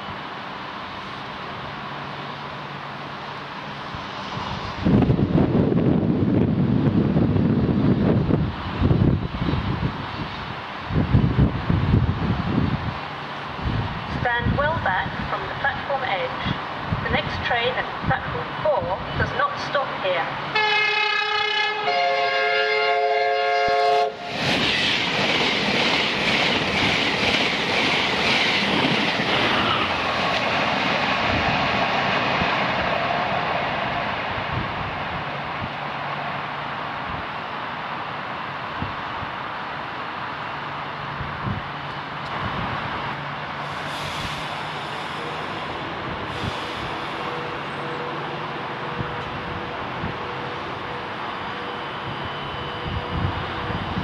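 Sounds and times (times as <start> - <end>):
train passing at speed: 0.0 - 54.0
train horn: 20.5 - 24.4.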